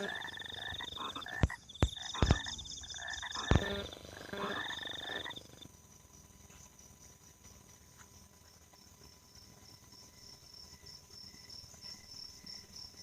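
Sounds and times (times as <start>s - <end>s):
frogs croaking: 0.0s - 6.2s
sharp clicks or knocks: 1.3s - 2.7s, 3.3s - 3.9s.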